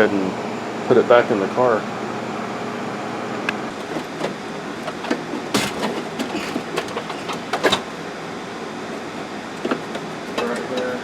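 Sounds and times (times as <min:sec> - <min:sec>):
steady background hum: 0:00.0 - 0:11.0
plastic parts clicking and knocking: 0:03.7 - 0:07.9
plastic clatter: 0:03.7 - 0:08.0.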